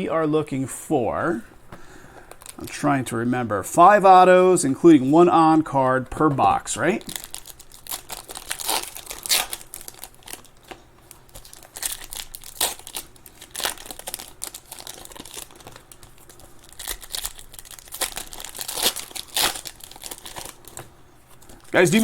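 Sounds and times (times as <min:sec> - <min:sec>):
plastic wrappers crinkling and tearing: 0:02.2 - 0:02.8, 0:06.7 - 0:22.0.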